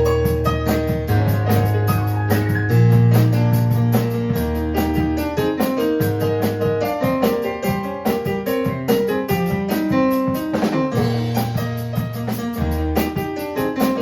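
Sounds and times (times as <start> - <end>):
electric keyboard piano playing: 0.0 - 14.0.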